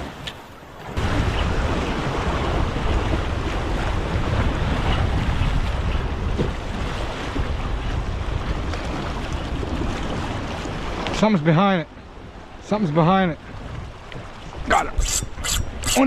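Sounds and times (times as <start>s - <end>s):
ocean surf washing: 0.0s - 16.0s
wind buffeting microphone: 1.0s - 11.2s, 13.4s - 16.0s.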